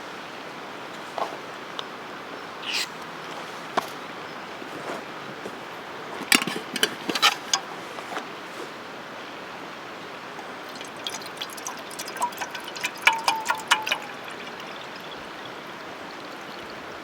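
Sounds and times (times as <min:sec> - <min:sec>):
campfire wood crackling: 0:10.3 - 0:15.6.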